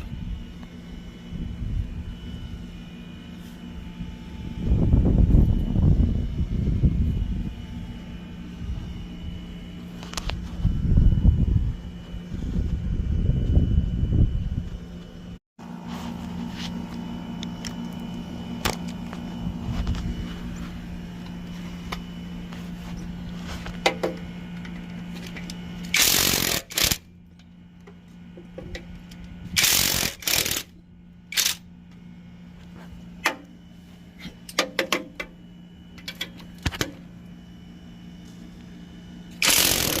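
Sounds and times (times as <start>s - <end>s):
machine hum: 0.0s - 40.0s
power tool bursts: 25.9s - 27.0s, 29.6s - 30.7s, 39.4s - 40.0s.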